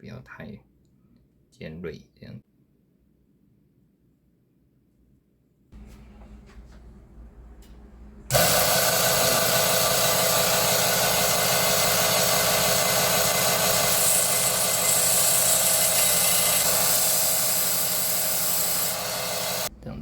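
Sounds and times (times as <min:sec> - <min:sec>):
power tool grinding metal: 0:08.3 - 0:19.7.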